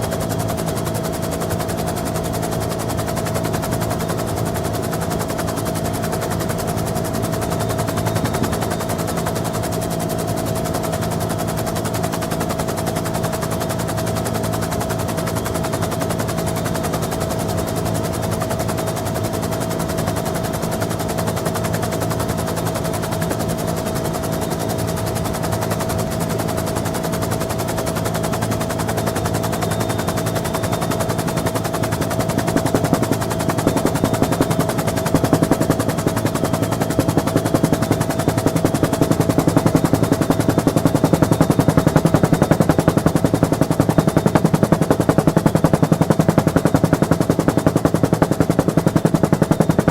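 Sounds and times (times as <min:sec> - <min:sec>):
helicopter engine whine: 0:00.0 - 0:49.9
rotor blade chop: 0:32.0 - 0:49.9.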